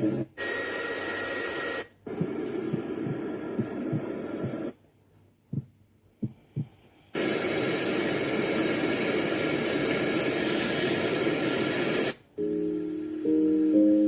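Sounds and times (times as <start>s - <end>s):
soft heartbeat thumps: 2.1s - 4.8s, 5.4s - 7.9s
rushing white noise: 7.2s - 13.8s
keyboard lullaby melody: 12.4s - 14.0s.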